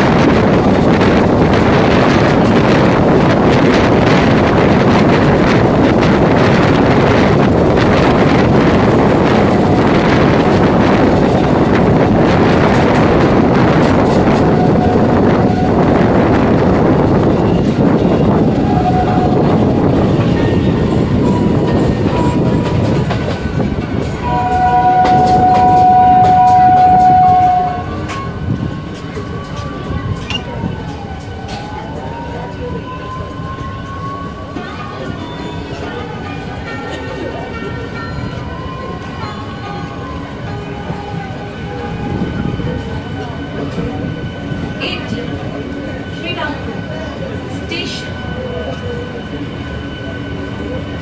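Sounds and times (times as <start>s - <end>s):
train wheels rumbling: 0.0s - 51.0s
loud high tone: 24.2s - 28.2s.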